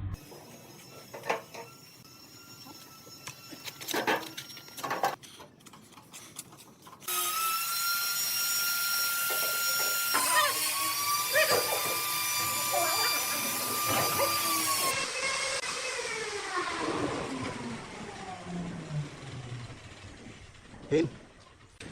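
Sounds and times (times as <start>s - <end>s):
power tool whining: 0.2s - 5.2s, 7.0s - 20.7s.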